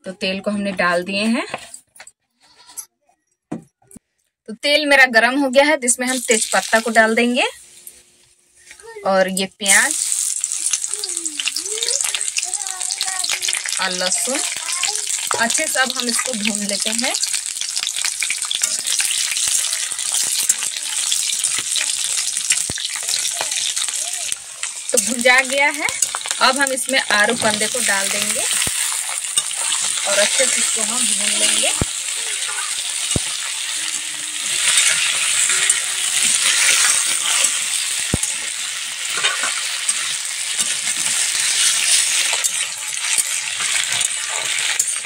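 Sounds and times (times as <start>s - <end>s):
onion and garlic sizzling in oil: 5.5s - 45.0s
metal spatula scraping a pan: 13.6s - 23.9s, 25.8s - 31.8s, 32.4s - 45.0s.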